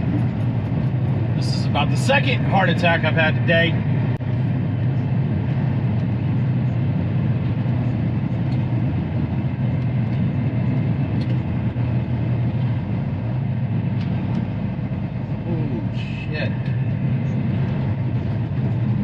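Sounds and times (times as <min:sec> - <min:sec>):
diesel truck engine drone: 0:00.0 - 0:19.0
road and tyre noise: 0:00.0 - 0:19.0.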